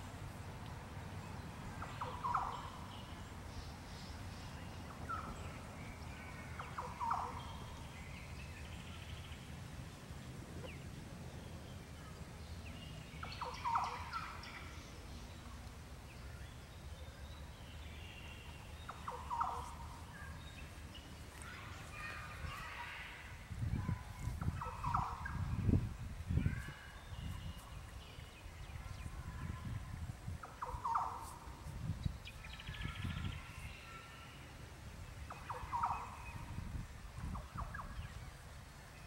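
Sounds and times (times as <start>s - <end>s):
bird calls: 1.7s - 9.5s, 11.8s - 15.6s, 16.2s - 25.7s, 30.4s - 34.4s, 35.2s - 36.6s
high bird twittering: 1.8s - 3.1s, 6.4s - 9.1s, 13.2s - 14.9s, 18.2s - 20.7s, 35.3s - 36.5s.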